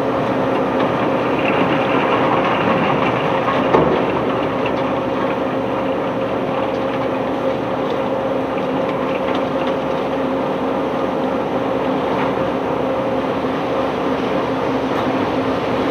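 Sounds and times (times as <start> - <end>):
heavy machinery engine drone: 0.0 - 15.9.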